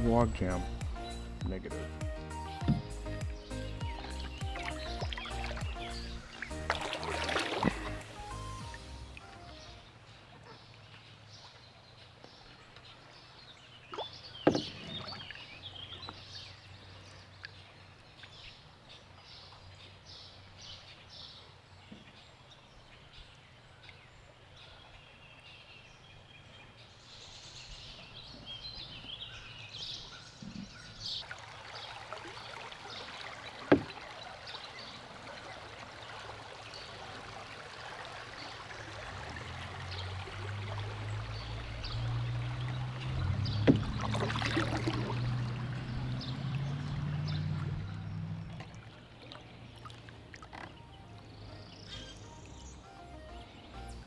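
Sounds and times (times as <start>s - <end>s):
water around canoe hull: 0.0s - 54.0s
paddle knocking against canoe: 2.6s - 6.1s, 14.4s - 15.2s, 33.5s - 34.2s, 41.9s - 45.4s.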